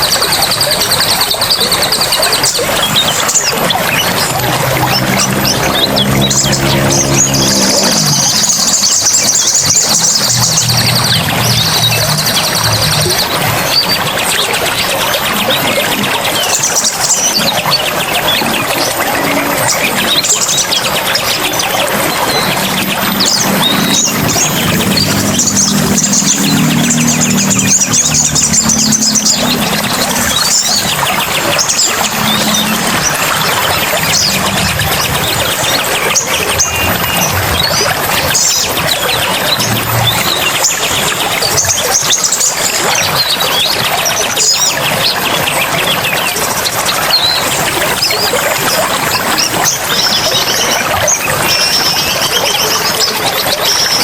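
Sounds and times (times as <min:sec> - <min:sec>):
running water: 0:00.0 - 0:54.0
songbirds chirping and trilling: 0:00.0 - 0:54.0
low hum: 0:02.7 - 0:14.8, 0:17.8 - 0:41.6.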